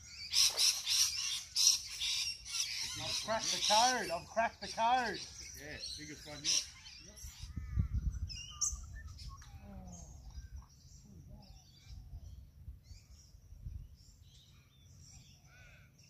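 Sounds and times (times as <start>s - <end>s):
birds chirping: 0.0s - 16.0s
wind on microphone: 7.0s - 14.2s.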